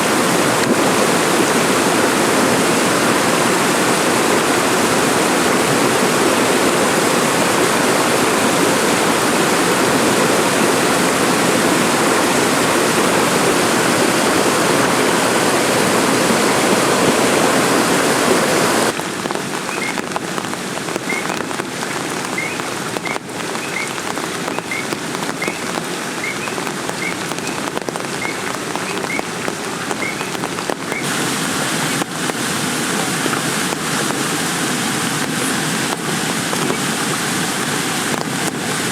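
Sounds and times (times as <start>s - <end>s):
heavy rain: 0.0s - 38.9s
sharp drips: 18.9s - 38.9s.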